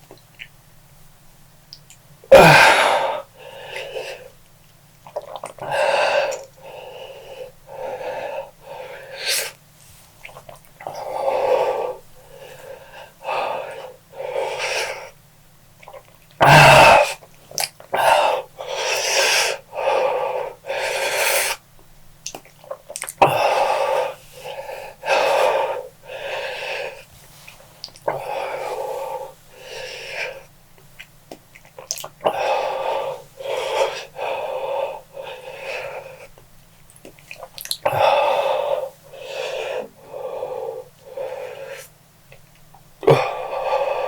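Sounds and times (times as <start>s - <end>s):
person breathing hard wheezing: 2.3s - 4.4s, 5.6s - 9.6s, 10.8s - 15.2s, 16.4s - 17.3s, 17.9s - 21.6s, 23.2s - 30.5s, 32.2s - 36.4s, 37.8s - 41.9s, 43.0s - 44.0s.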